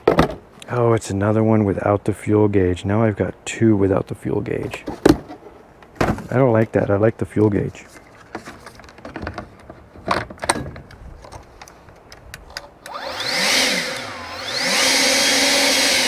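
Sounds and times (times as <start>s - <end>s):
leaf blower running: 12.8s - 16.0s.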